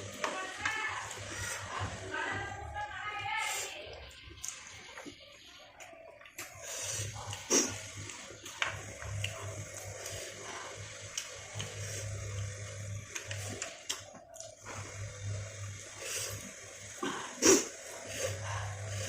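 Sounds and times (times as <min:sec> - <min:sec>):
wet chewing and lip smacking: 0:04.2 - 0:06.6, 0:13.1 - 0:14.6.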